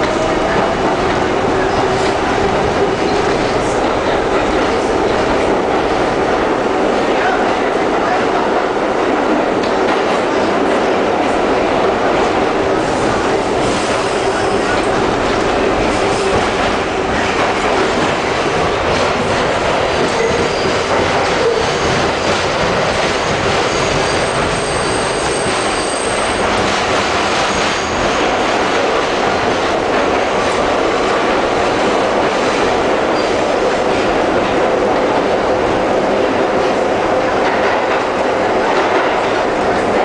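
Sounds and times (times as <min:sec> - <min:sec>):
subway wheels rumbling on rail: 0:00.0 - 0:40.0
high wheel squeal: 0:23.6 - 0:26.4
clacks over rail joints: 0:36.7 - 0:40.0.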